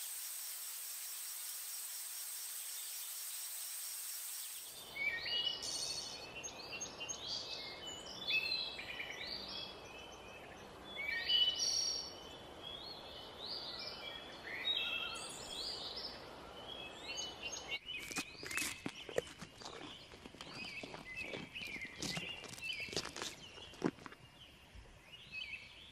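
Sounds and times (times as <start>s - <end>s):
running water from waterfall: 0.0s - 4.8s
birds chirping: 4.4s - 25.9s.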